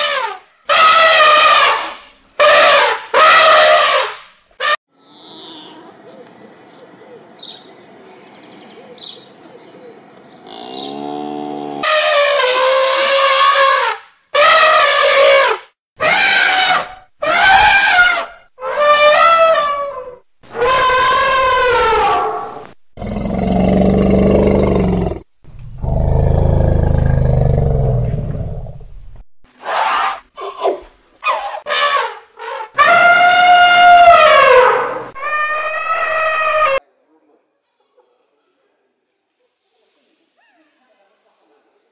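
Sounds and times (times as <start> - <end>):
elephant trumpeting: 0.7 - 4.1, 10.5 - 25.1, 31.3 - 36.8
cow mooing: 5.0 - 5.9, 10.4 - 12.0
low rumbling roars: 23.0 - 29.2.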